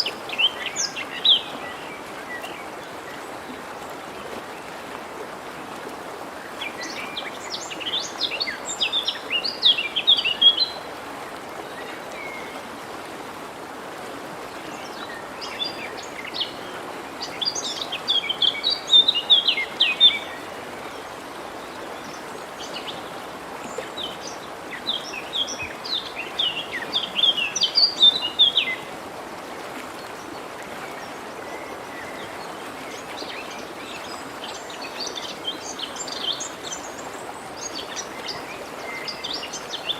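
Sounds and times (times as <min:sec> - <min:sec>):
stream rushing: 0:00.0 - 0:39.9
songbird singing: 0:06.6 - 0:10.9, 0:14.7 - 0:28.9.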